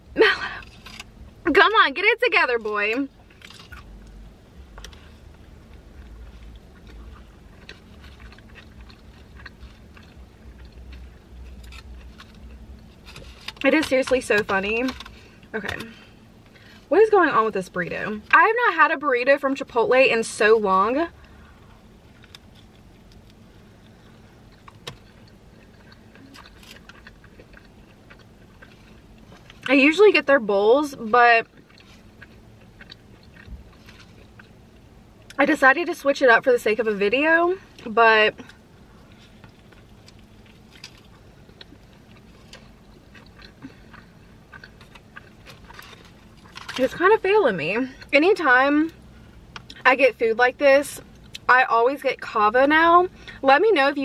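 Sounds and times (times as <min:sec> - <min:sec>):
low steady hum: 0:00.0 - 0:54.0
person chewing: 0:03.2 - 0:13.6, 0:21.2 - 0:29.7, 0:31.4 - 0:35.4, 0:38.4 - 0:46.8.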